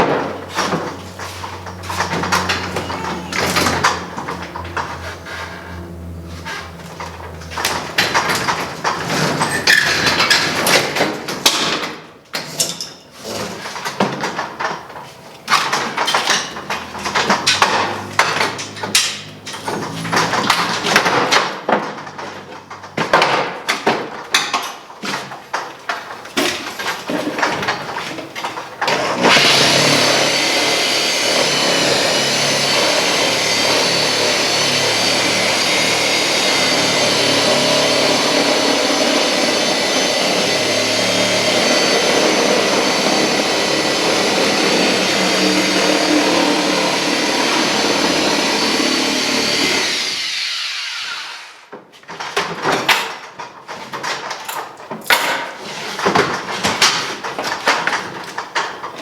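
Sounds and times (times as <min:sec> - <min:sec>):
power tool motor whining: 0:00.2 - 0:10.3, 0:28.9 - 0:51.5.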